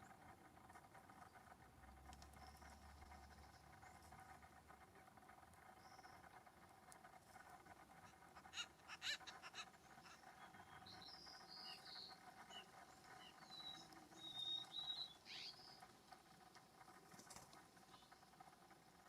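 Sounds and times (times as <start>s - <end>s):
faint steady hum: 0.0s - 19.0s
bird chirps and whistles: 13.6s - 15.1s.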